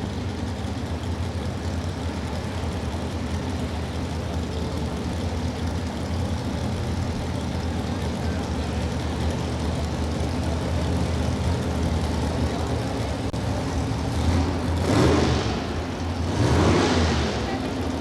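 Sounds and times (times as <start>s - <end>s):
truck engine revving: 8.4s - 18.0s.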